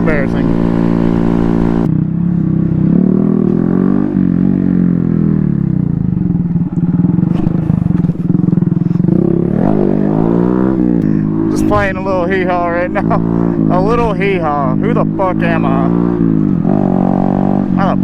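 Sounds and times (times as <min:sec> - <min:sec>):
small motorbike engine revving: 0:00.0 - 0:01.9, 0:06.6 - 0:14.6.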